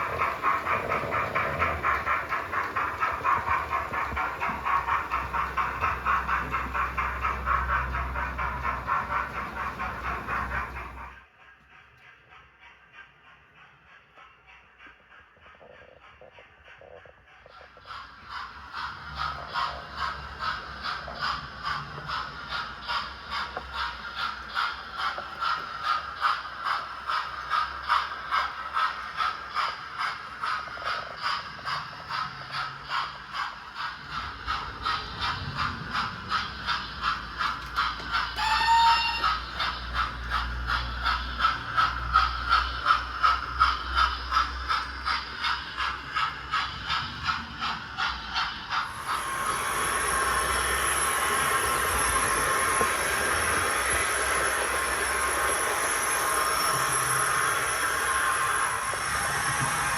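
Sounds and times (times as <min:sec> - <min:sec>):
model train wheels clicking on rails: 0:00.0 - 0:59.9
high squeal: 0:38.3 - 0:39.8.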